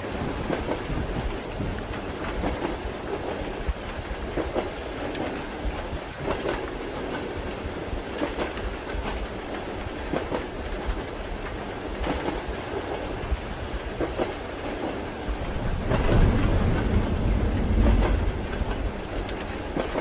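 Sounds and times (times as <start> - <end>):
steady rain: 0.0 - 20.0
train wheels clacking: 0.1 - 20.0.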